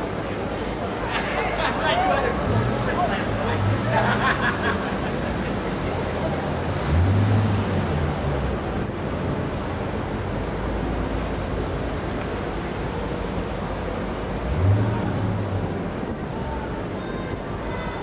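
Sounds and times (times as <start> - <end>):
car engines driving slowly past: 0.0 - 18.0
steady rush of noise: 0.0 - 18.0.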